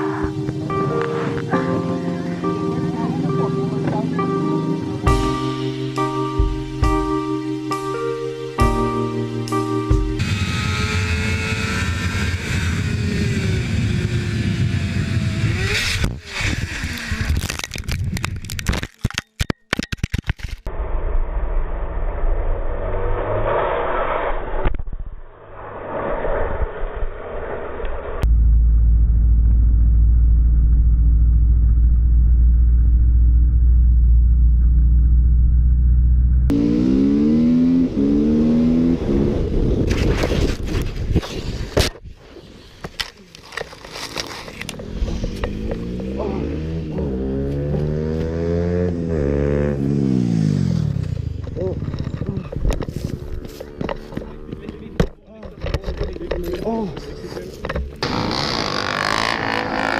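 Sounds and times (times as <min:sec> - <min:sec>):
background music: 0:00.0 - 0:10.8
motorcycle engine running: 0:09.9 - 0:17.2, 0:28.3 - 0:37.2, 0:44.7 - 0:55.0
vehicle road rumble: 0:09.9 - 0:19.4, 0:20.3 - 0:59.9
heavy wind noise: 0:38.3 - 0:43.0, 0:50.8 - 0:55.3.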